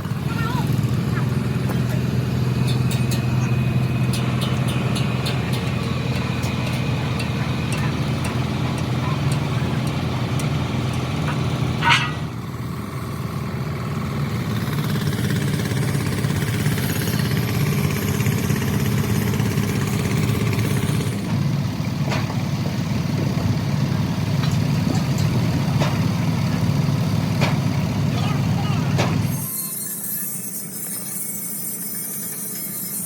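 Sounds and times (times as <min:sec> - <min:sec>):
engine idling: 0:00.0 - 0:29.4
high squeal: 0:29.3 - 0:33.0.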